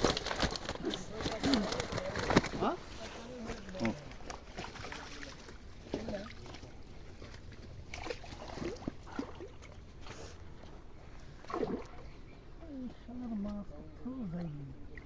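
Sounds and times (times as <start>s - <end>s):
faint voices: 0.0s - 7.3s
water sloshing and splashing: 0.0s - 12.4s.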